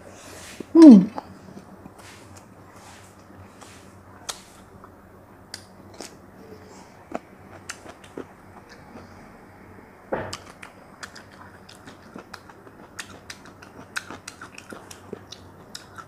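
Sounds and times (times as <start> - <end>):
faint steady hum: 0.0 - 16.0
wet chewing smacks: 10.3 - 16.0.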